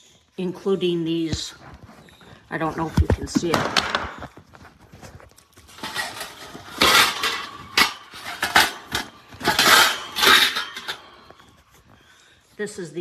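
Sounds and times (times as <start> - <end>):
plastic carrier clattering: 5.7 - 11.2.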